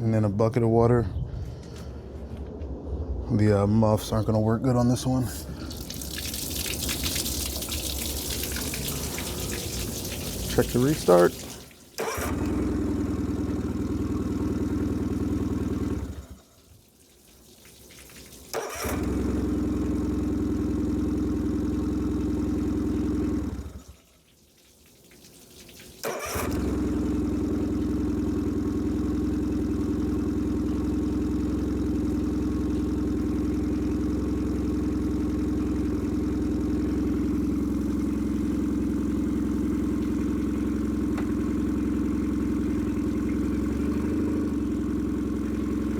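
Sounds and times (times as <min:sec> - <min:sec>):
outboard motor idling: 0:05.3 - 0:45.9
outboard motor restarting: 0:05.4 - 0:45.9.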